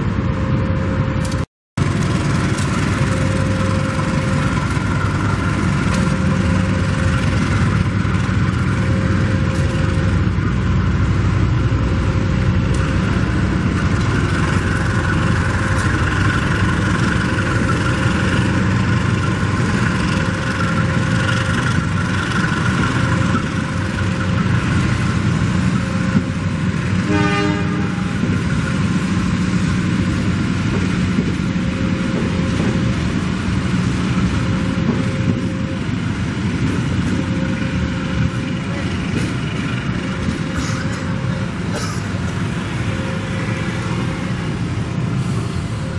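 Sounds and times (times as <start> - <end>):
diesel locomotive rumbling: 0.0 - 45.9
train horn toot: 26.9 - 28.4.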